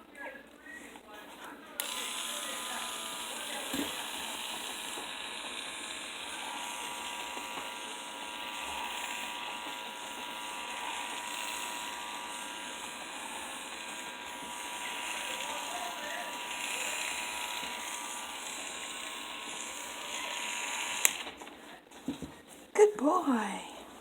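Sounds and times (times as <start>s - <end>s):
nail grinder whirring: 1.8s - 21.6s.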